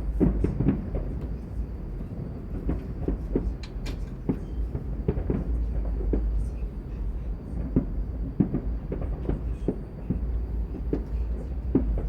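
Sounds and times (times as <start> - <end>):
steady low rumble: 9.0 - 12.0.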